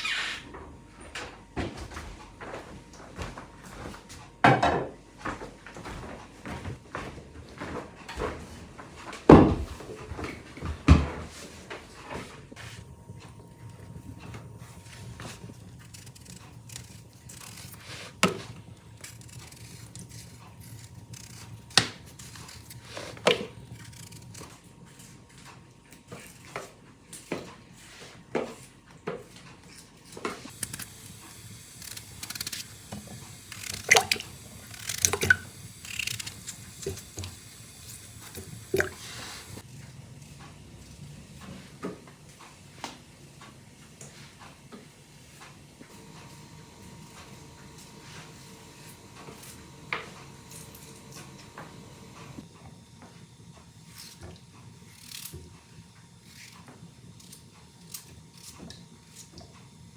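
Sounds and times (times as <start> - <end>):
water dripping and splashing: 33.0 - 39.6.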